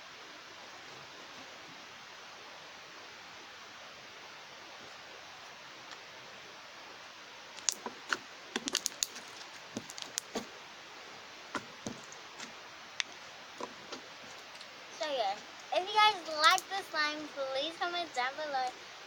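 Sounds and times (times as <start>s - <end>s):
faint hiss: 0.0s - 19.0s
slime clicking and popping: 8.6s - 9.2s.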